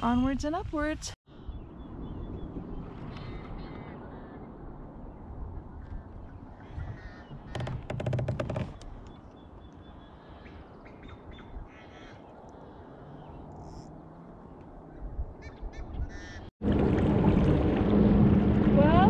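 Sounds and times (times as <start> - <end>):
birds calling: 1.4 - 7.9, 8.7 - 16.5.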